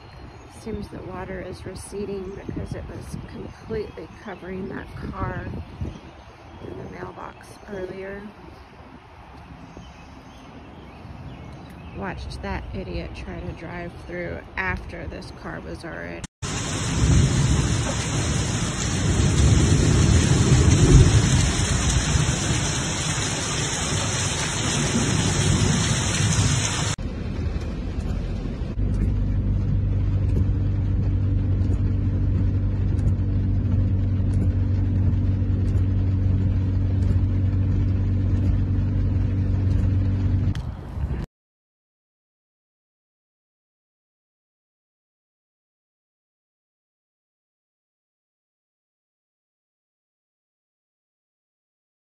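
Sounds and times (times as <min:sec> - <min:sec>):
heavy rain pouring: 0:16.4 - 0:28.8
low droning hum: 0:16.5 - 0:41.3.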